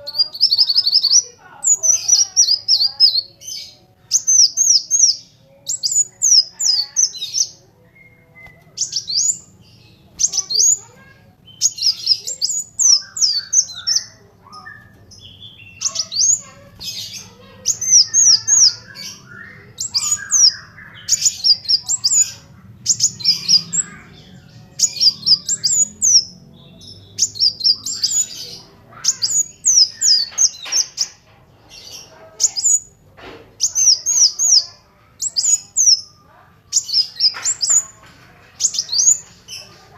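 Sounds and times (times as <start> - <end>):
sunbird singing sharp chirps: 0.0 - 31.1.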